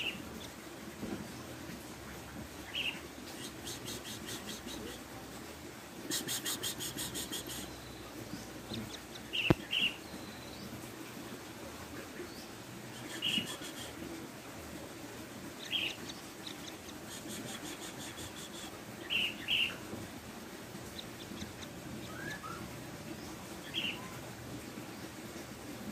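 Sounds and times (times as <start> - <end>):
bird chick calling: 13.0 - 13.9, 15.6 - 19.8, 20.9 - 22.6, 23.6 - 24.3.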